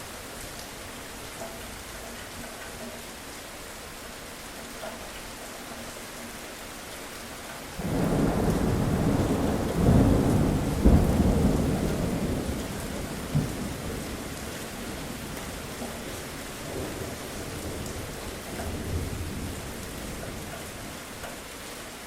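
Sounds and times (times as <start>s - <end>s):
steady rain falling: 0.0s - 22.0s
thunder rumbling and cracking: 7.8s - 20.8s.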